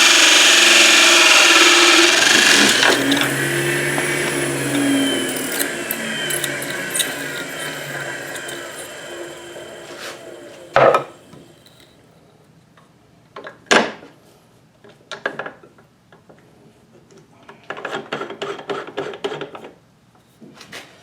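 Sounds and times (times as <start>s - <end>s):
light clattering of tools: 2.4s - 11.8s.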